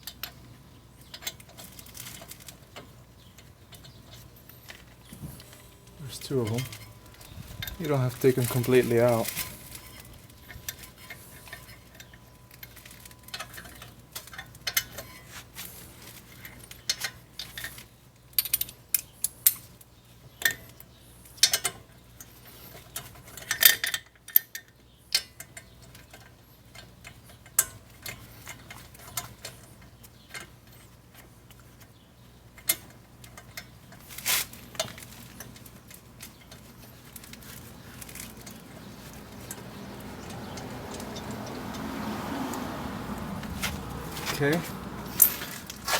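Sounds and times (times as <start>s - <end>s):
metal clanks: 3.7s - 15.3s, 43.5s - 45.9s
hand tools clicking on metal: 34.7s - 45.9s.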